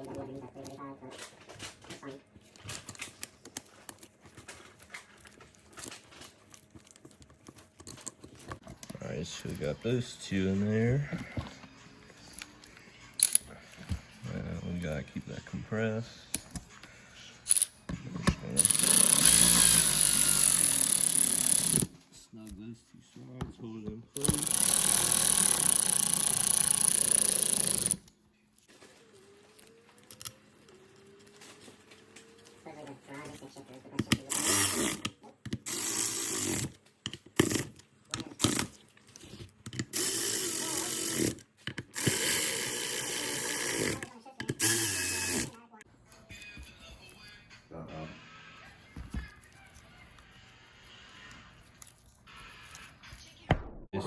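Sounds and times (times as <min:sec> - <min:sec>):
power tool running: 0:18.6 - 0:21.9, 0:24.2 - 0:28.0, 0:34.2 - 0:36.8, 0:39.9 - 0:45.6.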